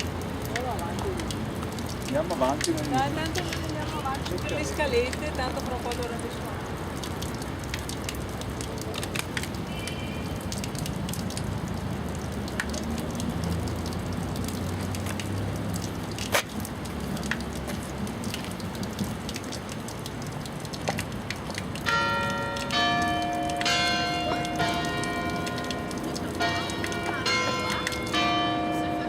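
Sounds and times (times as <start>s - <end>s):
light clicks and taps: 10.5s - 23.8s
church bell ringing: 21.9s - 29.0s.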